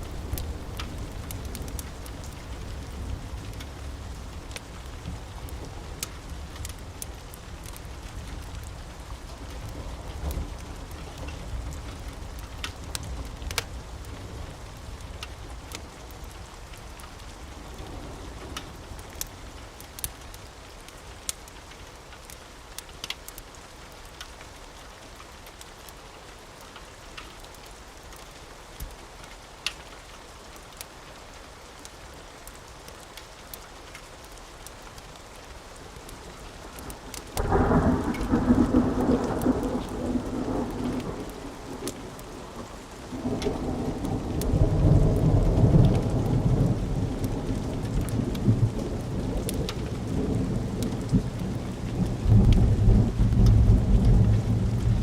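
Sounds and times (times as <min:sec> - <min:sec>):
thunder rumbling: 0:00.0 - 0:06.6, 0:36.9 - 0:55.0
steady rain: 0:00.0 - 0:55.0.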